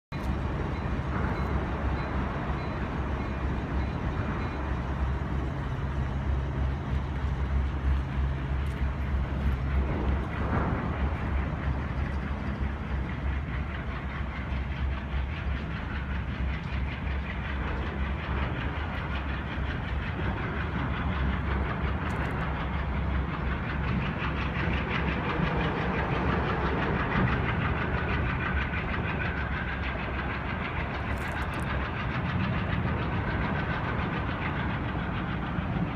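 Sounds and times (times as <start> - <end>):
diesel locomotive engine hum: 0.1 - 35.9
train wheels on rails: 0.1 - 35.9.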